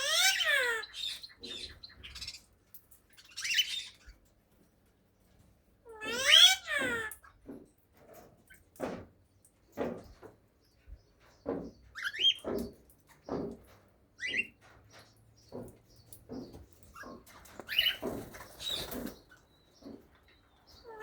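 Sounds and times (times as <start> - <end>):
cockatiels chirping: 17.0 - 20.0.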